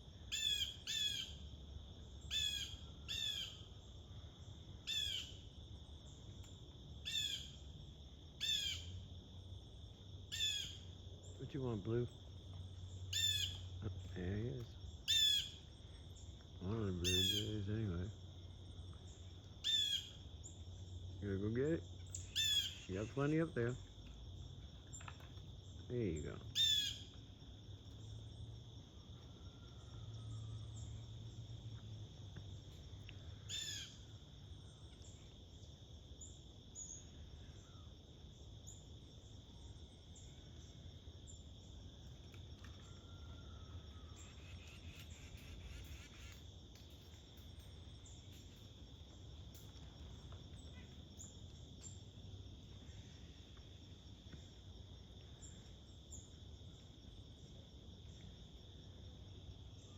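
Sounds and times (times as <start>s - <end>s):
high-pitched insect chorus: 0.0s - 59.9s
loud bird call: 15.1s - 15.6s, 17.1s - 17.7s, 22.2s - 23.2s.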